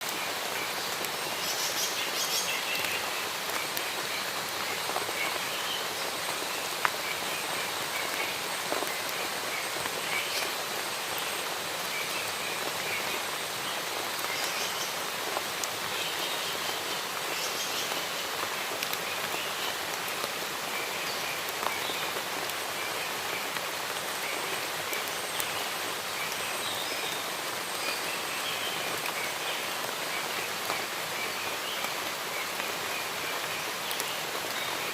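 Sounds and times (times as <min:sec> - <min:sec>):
rain on foliage: 0:00.0 - 0:34.9.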